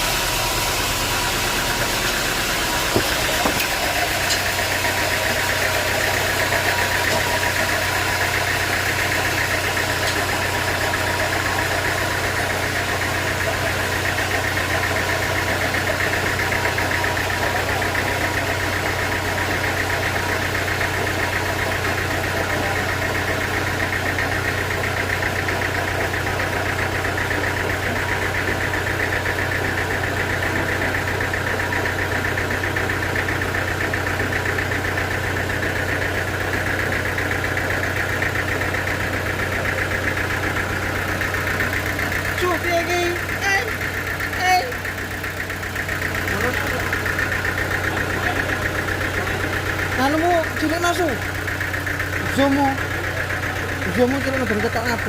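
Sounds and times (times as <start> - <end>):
sawmill motor drone: 0.0 - 55.0
sharp knocks: 2.8 - 4.5.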